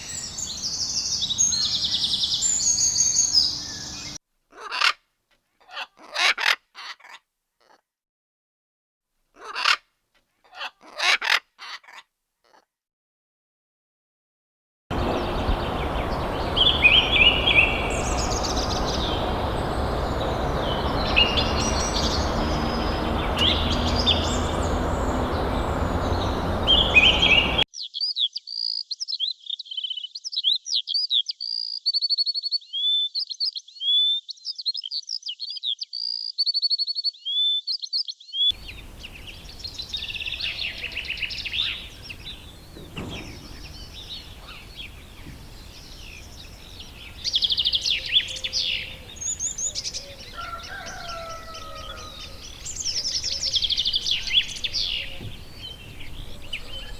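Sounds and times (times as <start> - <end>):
birds chirping and singing: 0.0 - 4.2, 14.9 - 27.6, 38.5 - 56.9
light hiss: 14.9 - 27.6, 38.6 - 50.4
loud steady rushing noise: 14.9 - 27.6.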